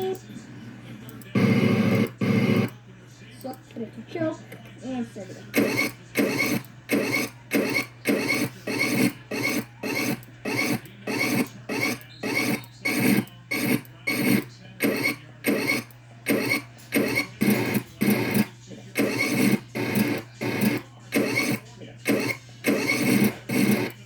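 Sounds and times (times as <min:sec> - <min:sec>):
rhythmic rasping noise: 0:00.0 - 0:02.8, 0:03.4 - 0:24.0.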